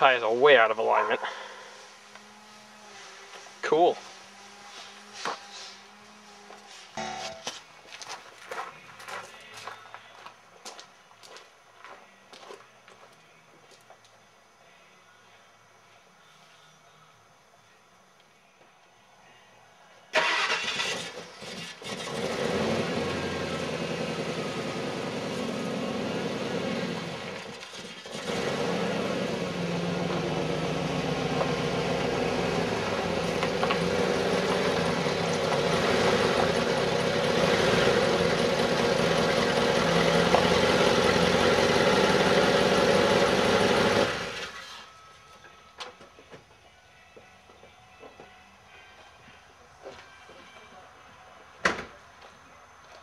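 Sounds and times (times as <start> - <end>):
truck engine running: 22.1 - 44.6.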